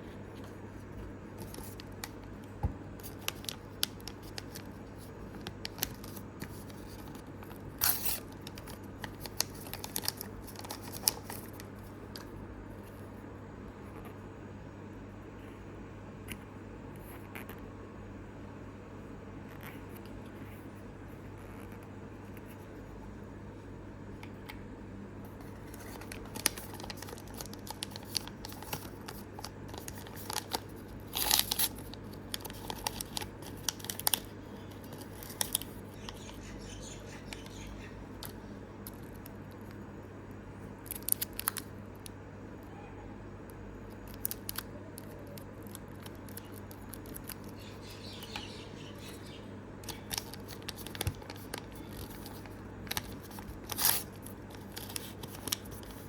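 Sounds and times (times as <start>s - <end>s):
steady low hum: 0.0s - 56.0s
plastic packaging crinkling and tearing: 3.0s - 12.3s, 25.6s - 37.6s, 40.8s - 41.7s, 43.9s - 48.0s, 49.8s - 56.0s.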